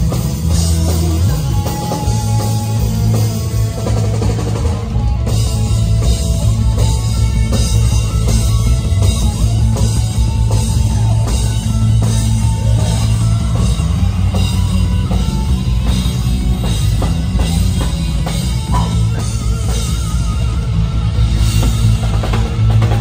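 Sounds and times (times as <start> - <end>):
rock band music: 0.0 - 23.0.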